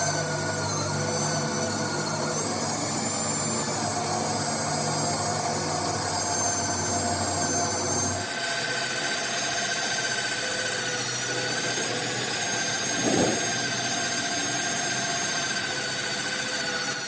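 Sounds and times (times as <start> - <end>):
machine whining over hiss: 0.0 - 17.0.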